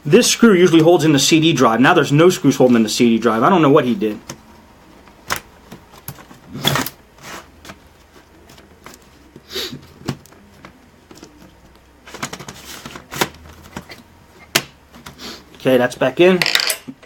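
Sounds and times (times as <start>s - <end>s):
hands handling plastic laptop parts: 5.0s - 15.2s.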